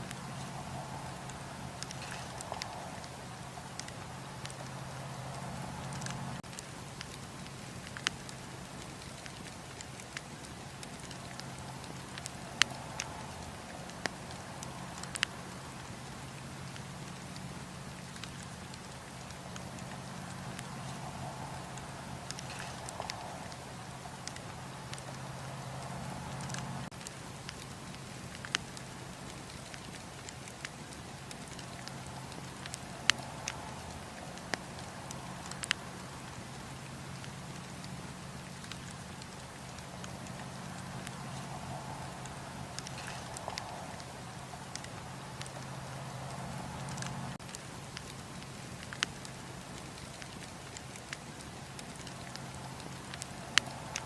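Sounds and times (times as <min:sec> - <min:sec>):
burning wood popping: 0:00.0 - 0:54.0
campfire flames hissing: 0:00.0 - 0:54.0
wind: 0:00.0 - 0:54.0.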